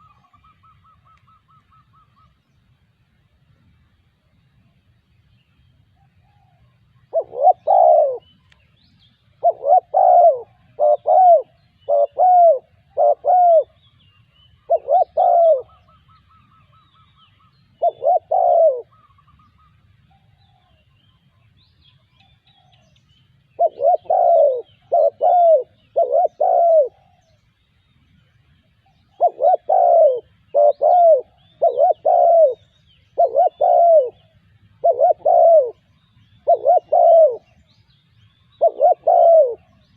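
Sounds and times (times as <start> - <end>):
small birds chirping: 5.1 - 39.9
dove cooing: 6.0 - 8.3, 9.4 - 13.8, 14.6 - 17.2, 17.8 - 19.4, 23.5 - 27.4, 29.1 - 37.6, 38.5 - 39.9.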